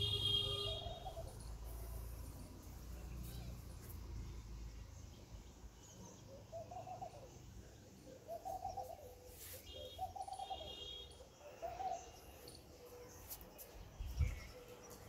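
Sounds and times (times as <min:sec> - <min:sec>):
faint high bird chirping: 0:00.1 - 0:02.0, 0:05.8 - 0:15.0.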